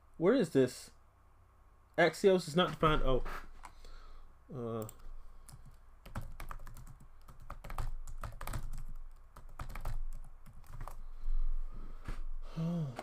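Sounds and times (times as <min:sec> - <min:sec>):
computer keyboard typing: 0:04.8 - 0:11.0.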